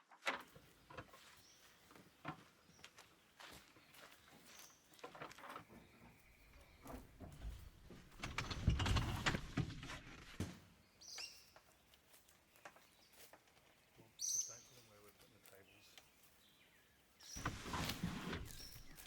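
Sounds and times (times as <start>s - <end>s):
knocks and clatter: 6.8s - 10.6s
bird chirping: 10.8s - 19.0s.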